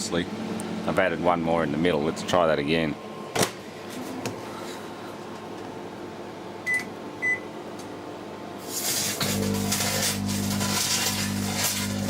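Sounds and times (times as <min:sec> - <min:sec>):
microwave oven running: 0:00.0 - 0:12.0
short keypad beeps: 0:06.7 - 0:07.4.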